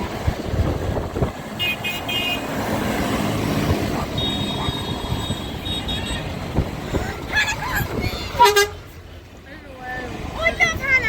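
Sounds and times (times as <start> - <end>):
tractor engines passing: 0.0 - 11.0
horn toots: 4.0 - 6.3, 8.3 - 8.9.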